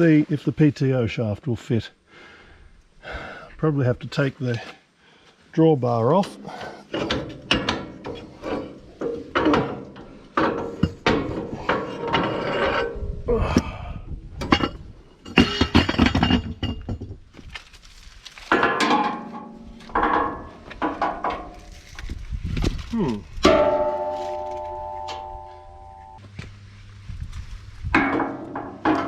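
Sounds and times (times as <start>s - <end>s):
metal parts clanking: 6.3s - 13.1s, 14.4s - 22.2s.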